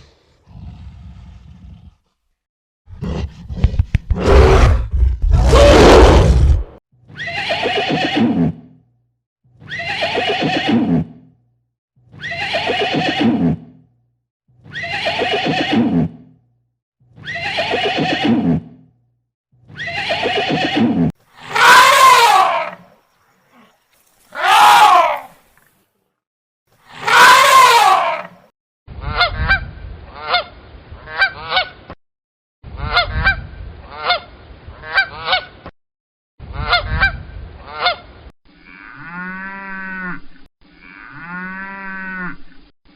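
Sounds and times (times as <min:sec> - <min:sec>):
loud rough animal call: 0:02.9 - 0:06.7, 0:19.8 - 0:22.9
repeated animal call: 0:09.6 - 0:11.2, 0:12.1 - 0:13.7, 0:14.6 - 0:16.2, 0:17.2 - 0:18.8, 0:19.7 - 0:22.9, 0:27.0 - 0:29.6.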